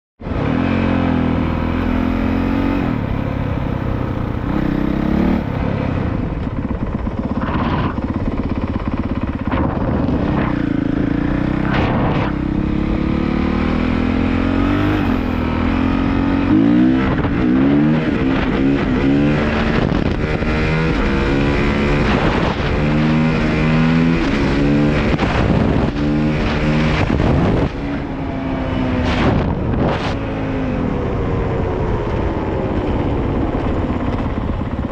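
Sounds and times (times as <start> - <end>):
dirt bike engine revving: 0.3 - 5.7, 6.7 - 28.1.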